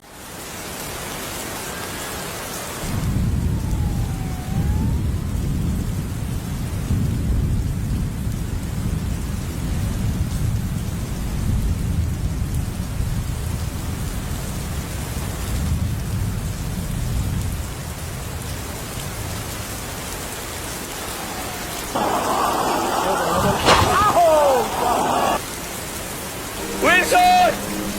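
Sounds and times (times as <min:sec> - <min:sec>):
rain hissing: 0:00.1 - 0:27.9
thunder rumbling: 0:02.7 - 0:14.6, 0:20.6 - 0:25.4.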